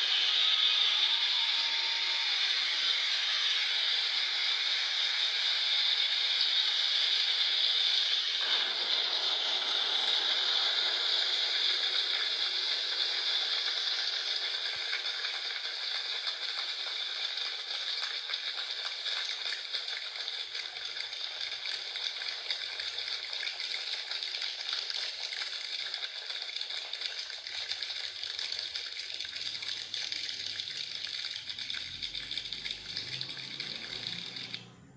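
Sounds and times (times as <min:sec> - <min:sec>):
finger making rain-like patter: 0:25.4 - 0:34.6.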